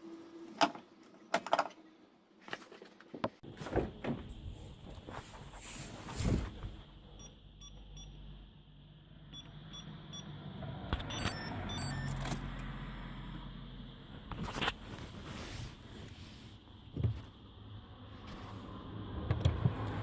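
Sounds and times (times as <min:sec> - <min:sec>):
short high electronic beeps: 0:11.1 - 0:13.2.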